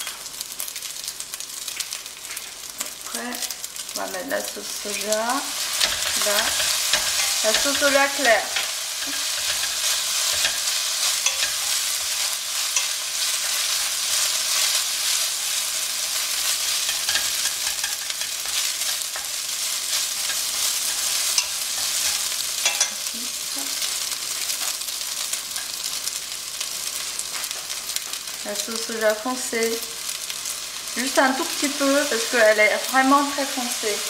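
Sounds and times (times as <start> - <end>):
rice sizzling in a pan: 0.0 - 34.0
chopsticks scraping a pan: 4.8 - 25.8.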